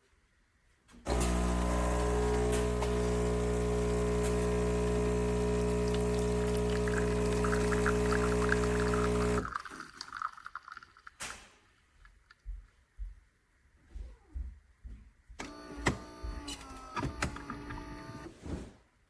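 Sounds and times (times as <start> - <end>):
espresso machine pump: 1.1 - 9.5.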